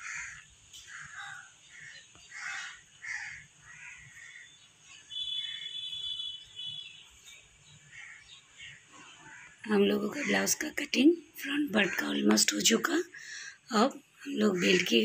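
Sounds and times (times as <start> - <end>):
bird harsh calls: 0.0 - 10.6, 14.3 - 15.0.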